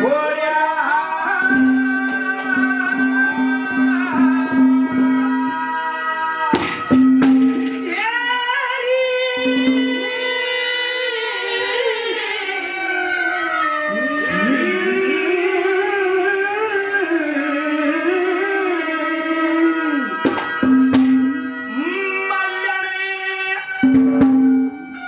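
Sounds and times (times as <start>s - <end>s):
person singing long sliding notes: 0.0s - 6.9s, 7.8s - 23.9s
sharp drum strikes: 6.5s - 8.1s, 20.2s - 21.4s.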